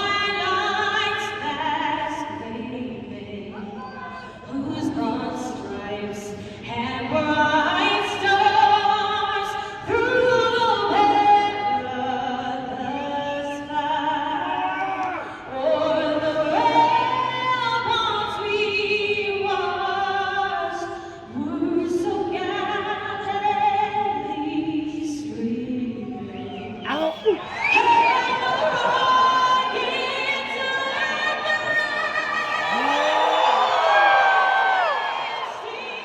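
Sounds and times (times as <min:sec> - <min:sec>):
person singing with vibrato: 0:10.8 - 0:26.1, 0:26.8 - 0:27.5, 0:28.1 - 0:35.0.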